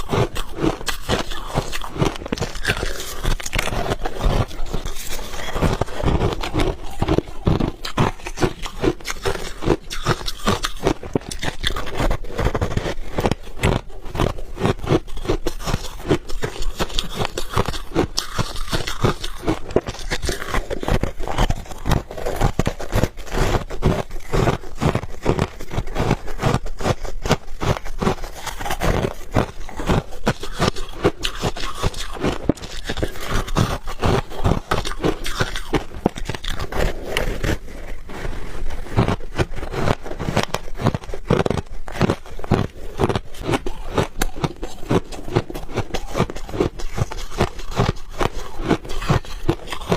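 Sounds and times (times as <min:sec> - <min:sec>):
chewing ice crunches: 0:00.0 - 0:49.9.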